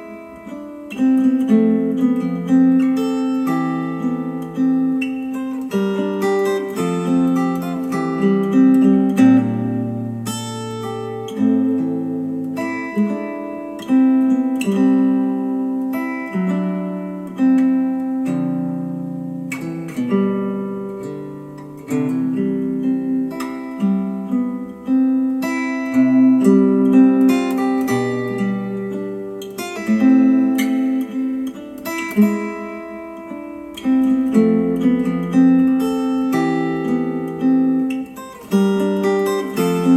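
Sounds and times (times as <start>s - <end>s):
acoustic guitar music: 0.0s - 39.9s.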